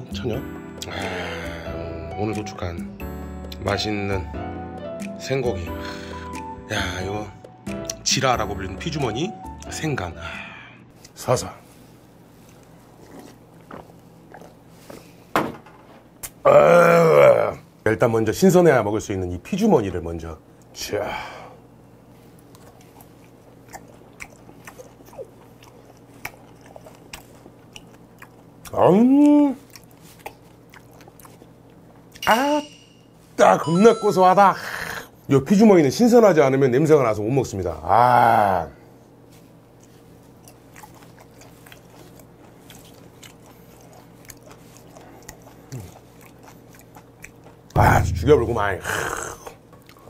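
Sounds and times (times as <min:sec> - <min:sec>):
mouth chewing with wet smacks: 0:12.4 - 0:15.1, 0:22.3 - 0:32.2, 0:39.7 - 0:47.8.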